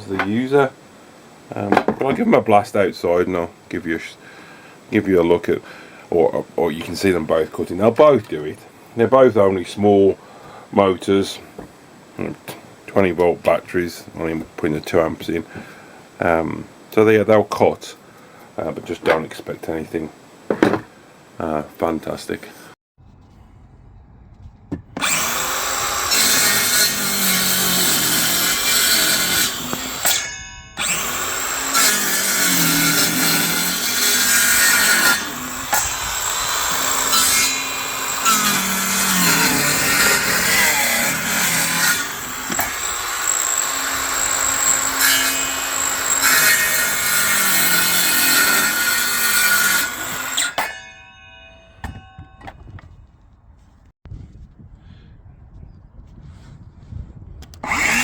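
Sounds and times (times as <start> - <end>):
circular saw cutting timber: 23.0 - 52.6, 57.6 - 58.0.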